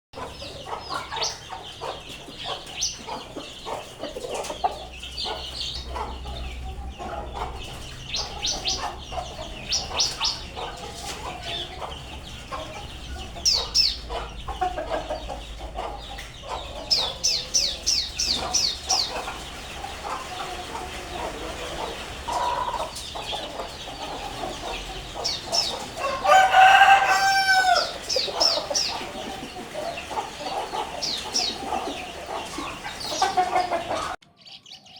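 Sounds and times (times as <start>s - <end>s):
chickens clucking: 0.2s - 34.2s
rooster crowing: 26.0s - 28.7s.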